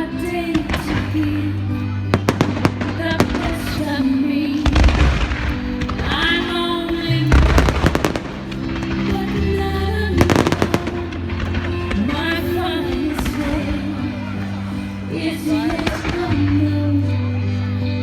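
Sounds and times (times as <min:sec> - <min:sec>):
loud music with held notes: 0:00.0 - 0:18.0
fireworks bangs and crackles: 0:00.5 - 0:14.9.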